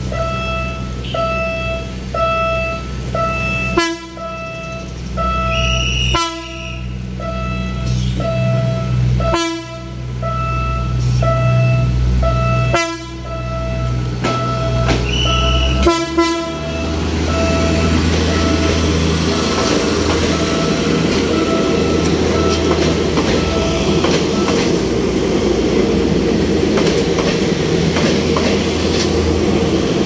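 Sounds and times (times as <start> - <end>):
crossing warning signal beeping: 0.0 - 24.9
diesel train engine droning: 0.0 - 30.0
train wheels rushing rumble: 0.0 - 30.0
train horn blasts: 0.1 - 19.6.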